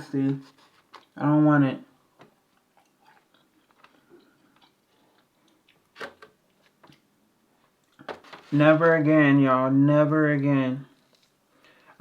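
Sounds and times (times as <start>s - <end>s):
faint chewing and mouth noises: 2.1s - 8.1s.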